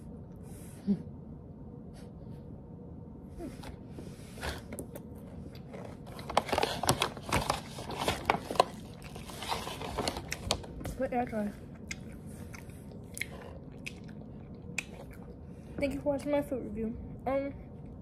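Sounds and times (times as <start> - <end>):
crunchy snack being chewed: 4.8 - 10.7, 11.7 - 15.4.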